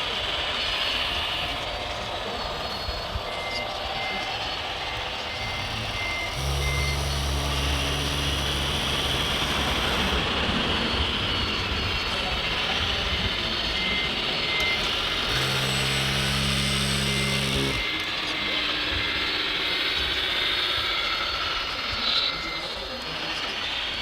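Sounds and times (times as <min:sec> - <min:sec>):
high electric motor whine: 0:00.0 - 0:24.0
reversing alarm beeps: 0:01.4 - 0:20.1
low engine hum: 0:05.4 - 0:11.2.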